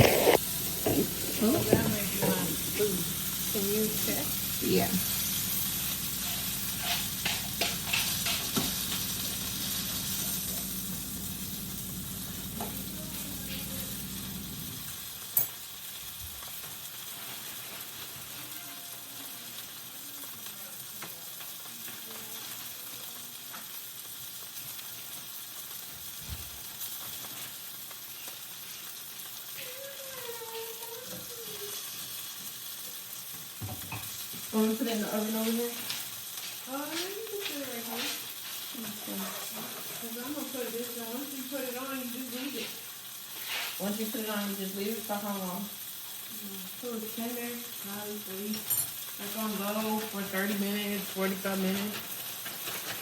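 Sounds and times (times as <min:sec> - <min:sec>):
clicks and scrapes: 0:00.0 - 0:01.1
meat sizzling in a frying pan: 0:00.0 - 0:53.0.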